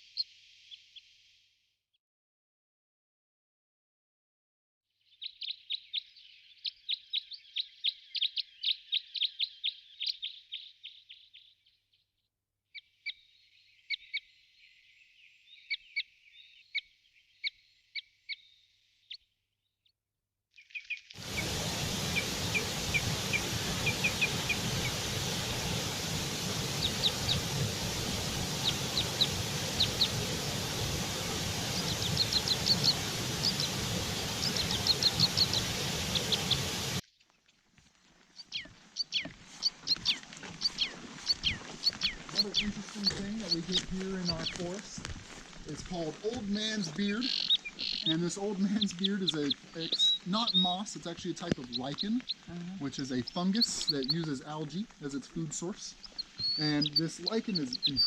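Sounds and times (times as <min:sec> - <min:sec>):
birds chirping: 0:05.1 - 0:12.0, 0:20.6 - 0:58.0
steady rushing noise: 0:21.2 - 0:37.0.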